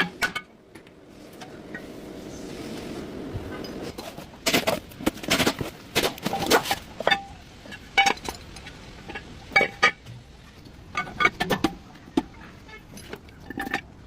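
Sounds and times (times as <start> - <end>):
metal tools clinking and knocking: 10.9 - 14.0.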